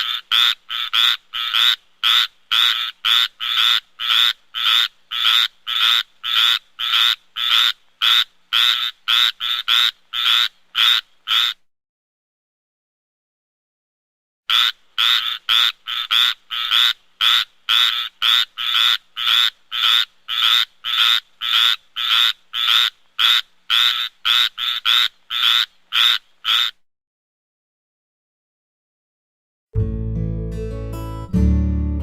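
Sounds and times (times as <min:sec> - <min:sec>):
tree frog croaking: 0:00.0 - 0:11.7, 0:14.5 - 0:26.8.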